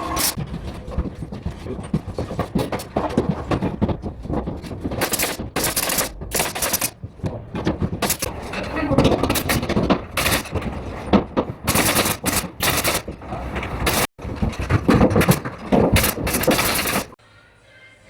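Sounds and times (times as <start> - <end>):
nail gun firing: 4.8 - 7.0, 8.0 - 8.3, 9.1 - 13.2, 14.8 - 17.2.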